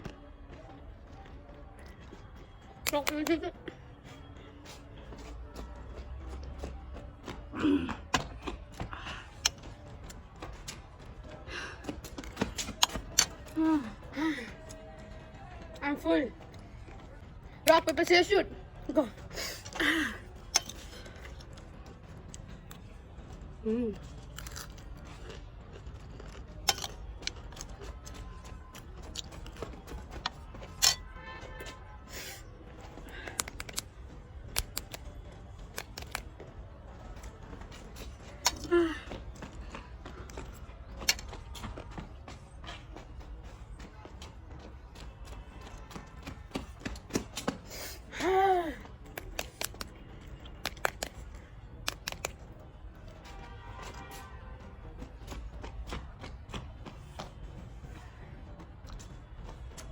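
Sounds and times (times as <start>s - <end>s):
crunchy bites and chewing: 24.2s - 27.6s.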